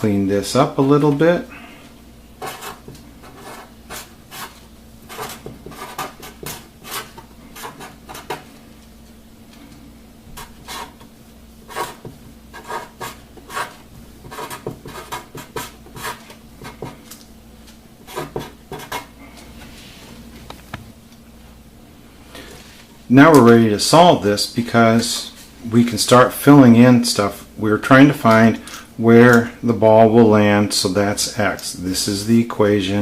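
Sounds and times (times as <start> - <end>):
writing strokes on a board: 2.4 - 8.4, 10.4 - 11.0, 11.7 - 17.0, 18.0 - 19.1.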